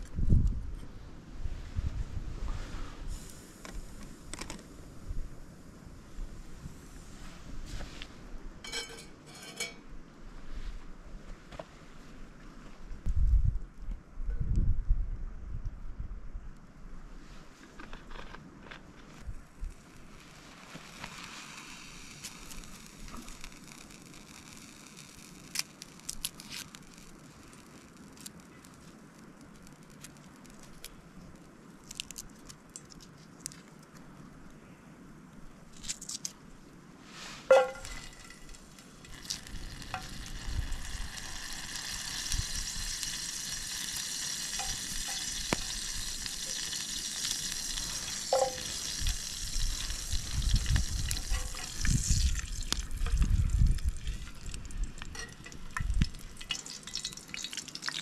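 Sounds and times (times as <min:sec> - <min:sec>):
garlic sizzling in oil: 0:37.5 - 0:58.0.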